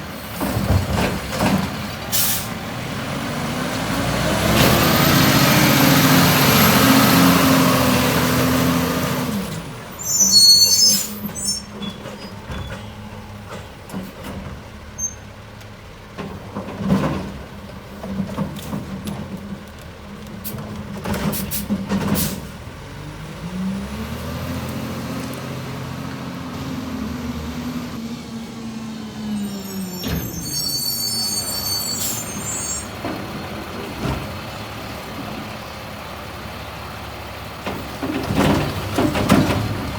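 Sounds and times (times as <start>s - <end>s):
garbage truck engine revving: 0.2s - 10.0s, 20.5s - 30.5s, 31.1s - 39.9s
air brakes squealing: 2.1s - 2.6s, 9.9s - 13.1s, 14.9s - 15.3s, 29.2s - 33.0s
sharp knocks and clanks: 37.6s - 39.9s.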